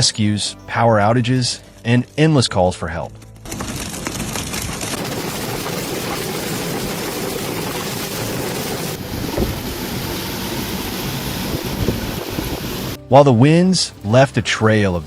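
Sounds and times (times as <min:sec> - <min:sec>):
wind: 0:03.3 - 0:13.2
rain: 0:03.5 - 0:13.0.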